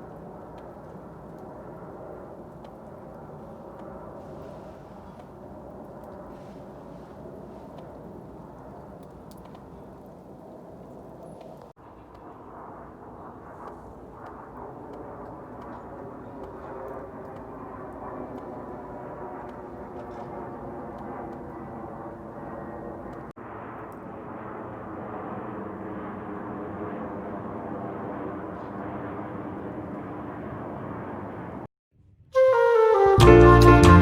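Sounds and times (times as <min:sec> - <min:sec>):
jet engines droning overhead: 0:00.0 - 0:31.7
loud music: 0:32.9 - 0:34.0.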